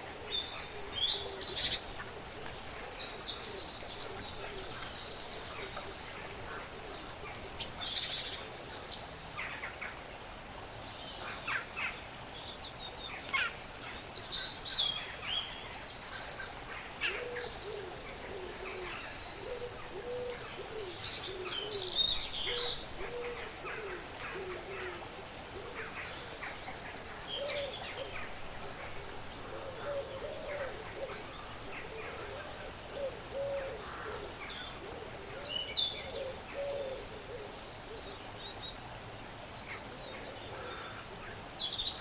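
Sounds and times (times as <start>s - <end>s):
low repeated bird hooting: 16.4s - 26.4s, 27.4s - 38.3s.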